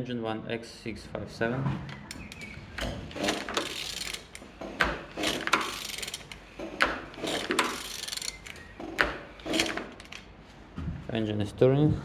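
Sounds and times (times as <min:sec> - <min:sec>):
ratchet wrench clicking: 0:02.3 - 0:10.2.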